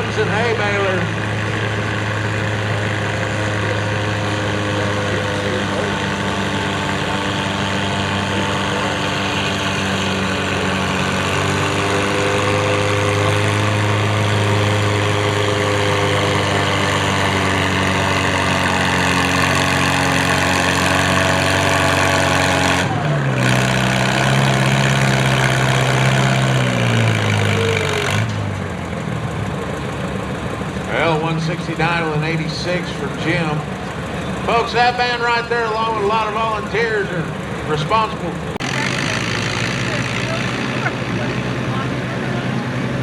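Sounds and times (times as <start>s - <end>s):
tractor engine running under load: 0.0s - 43.0s.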